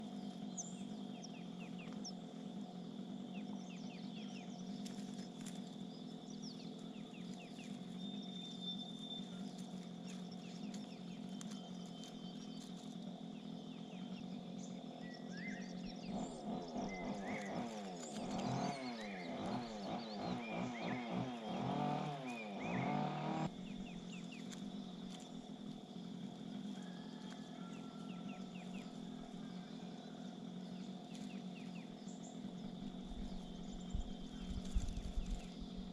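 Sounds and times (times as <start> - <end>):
harsh wavering bird calls: 0.0 - 25.7
birds calling: 0.0 - 35.9
steady background hum: 0.0 - 35.9
thin bird chirps: 3.4 - 22.9.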